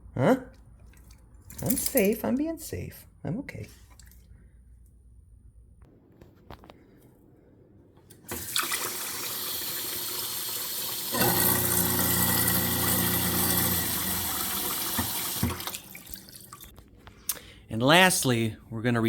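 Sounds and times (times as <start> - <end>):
garbage disposal motor hum: 8.1 - 16.7
faucet running into sink: 8.3 - 16.7.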